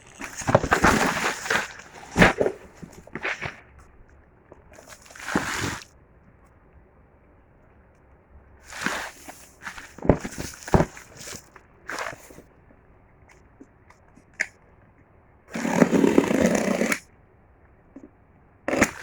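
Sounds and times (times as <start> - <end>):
packaging rustling: 0.0 - 3.6, 4.8 - 5.8, 8.7 - 12.4.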